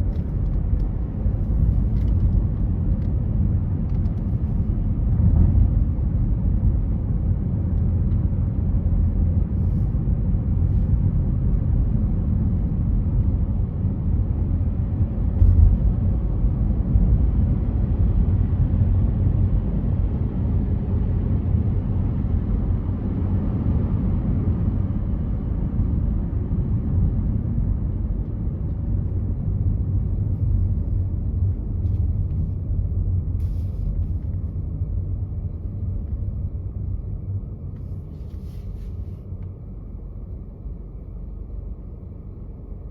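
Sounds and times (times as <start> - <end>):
road and tyre rumble: 0.0 - 42.9.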